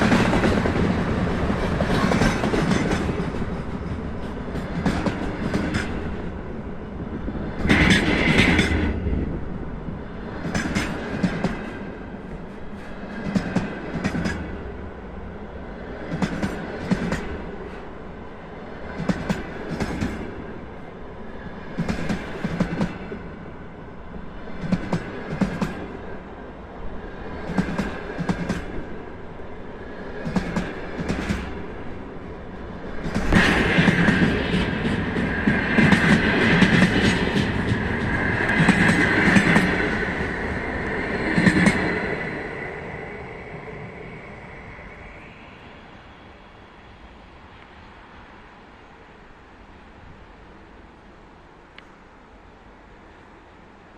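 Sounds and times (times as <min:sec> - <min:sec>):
train wheels clacking over joints: 0:00.0 - 0:06.2, 0:07.6 - 0:08.9, 0:10.4 - 0:11.8, 0:33.0 - 0:42.0
rolling rumble of train: 0:00.0 - 0:53.9.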